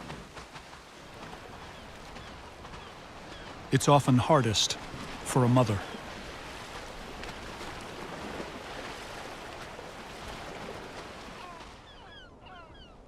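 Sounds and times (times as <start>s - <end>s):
wind and surf: 0.0s - 13.0s
birds calling: 1.2s - 6.4s, 11.4s - 13.0s.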